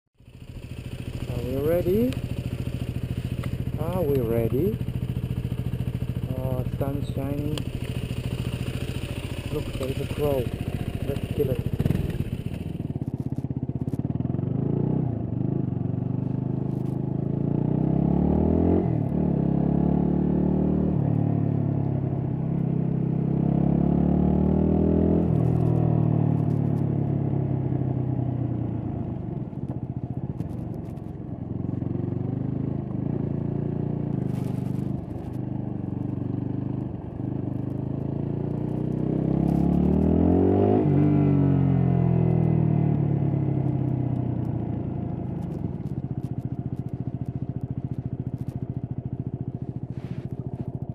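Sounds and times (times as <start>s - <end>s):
motorcycle engine accelerating: 0.2s - 50.9s.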